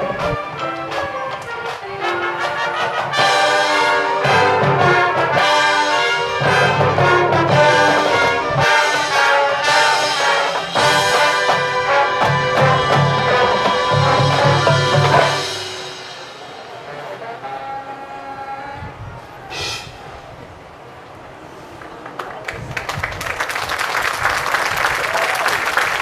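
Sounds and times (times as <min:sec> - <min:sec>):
marching band playing: 0:00.0 - 0:18.7
trombones and trumpets: 0:00.0 - 0:20.4.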